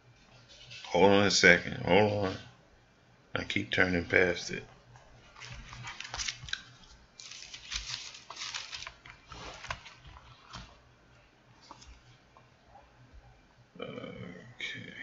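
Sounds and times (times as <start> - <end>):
thin pages being turned: 5.3 - 10.8, 11.6 - 12.2.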